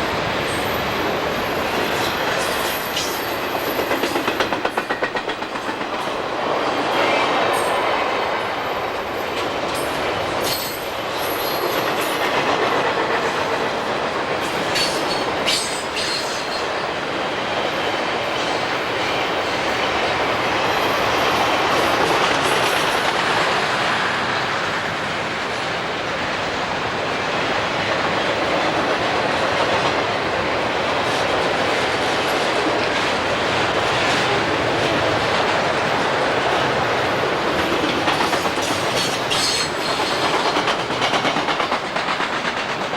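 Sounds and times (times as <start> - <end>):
train rolling past: 0.0 - 42.9
wheels clicking over rail joints: 1.9 - 6.4, 9.3 - 16.8, 30.9 - 42.9.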